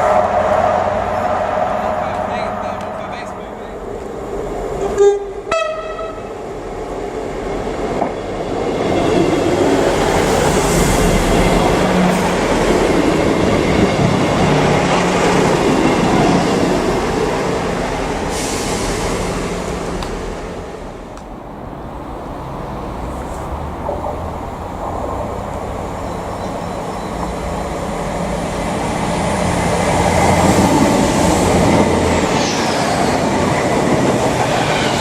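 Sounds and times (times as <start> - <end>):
train rumbling past on rails: 0.0 - 35.0
train horn blasts: 4.8 - 6.3.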